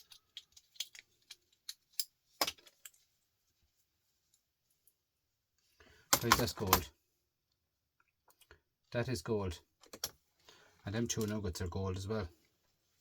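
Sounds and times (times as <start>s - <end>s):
small metal pieces clicking: 0.0s - 3.0s.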